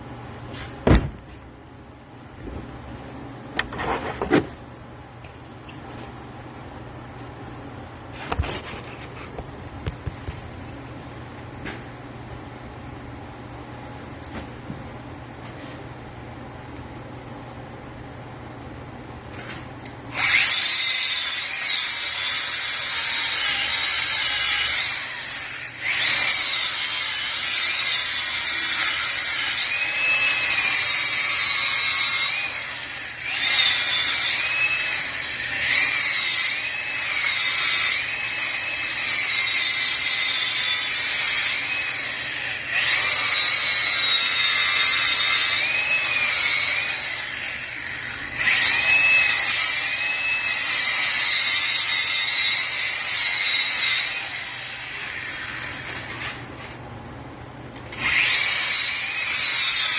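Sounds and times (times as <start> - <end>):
power tool whining: 20.1 - 56.8, 57.8 - 59.9.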